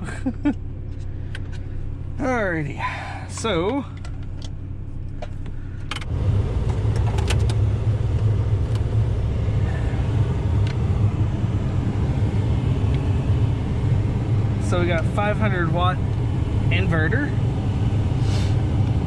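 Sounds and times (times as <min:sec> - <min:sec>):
truck engine and heater rumble: 0:00.0 - 0:19.0.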